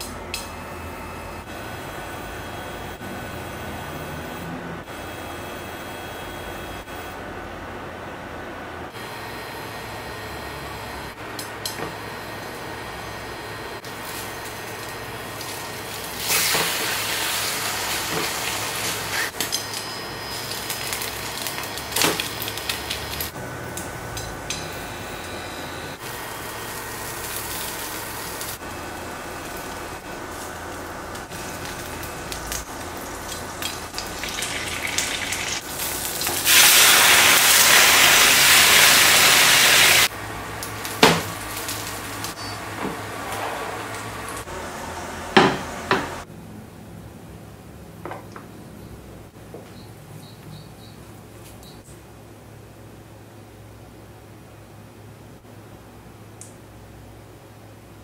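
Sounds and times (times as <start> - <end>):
food frying in a pan: 13.9 - 23.3, 26.1 - 43.2.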